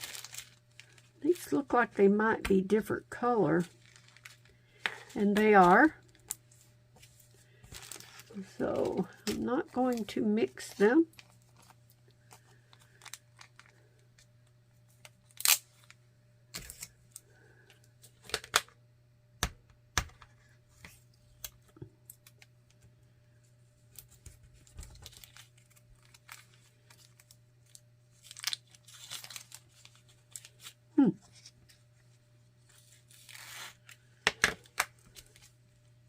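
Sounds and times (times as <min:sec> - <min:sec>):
plastic bags rustling: 0:00.0 - 0:01.6, 0:03.6 - 0:14.2, 0:23.9 - 0:32.0.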